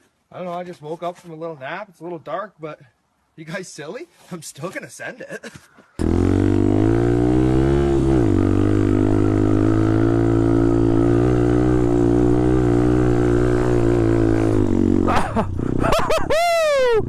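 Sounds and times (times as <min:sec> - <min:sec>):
dirt bike engine running: 0:06.0 - 0:16.2.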